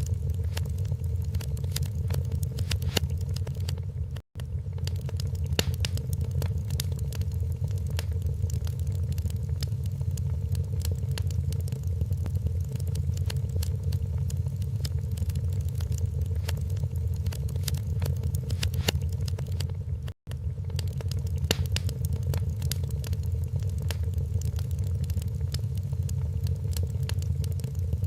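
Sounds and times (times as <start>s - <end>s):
steady low rumble: 0.0s - 28.0s
wood fire crackling: 0.0s - 28.0s.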